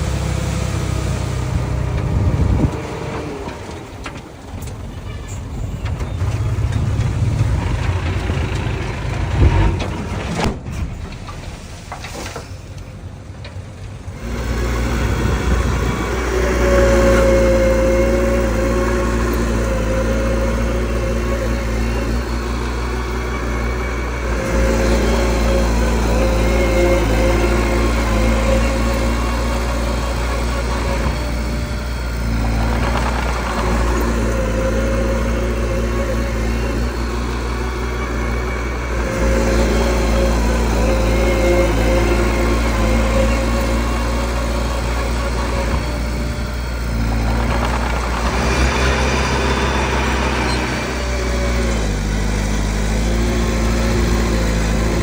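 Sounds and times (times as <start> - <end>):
diesel engine under load: 0.0 - 55.0
high whine: 14.1 - 52.0.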